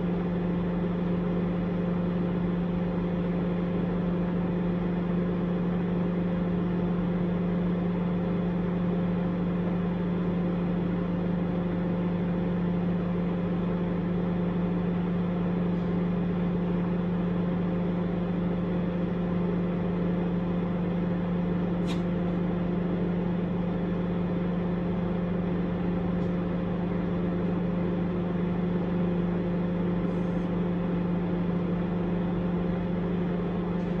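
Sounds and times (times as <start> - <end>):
microwave oven humming: 0.0 - 34.0
small click: 21.8 - 22.2.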